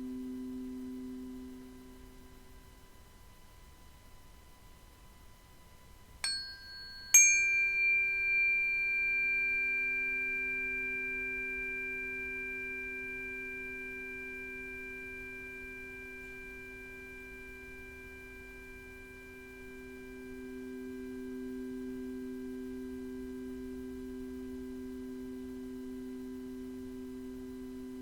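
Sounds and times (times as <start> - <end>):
metal percussion bell-like strikes: 6.2 - 20.8.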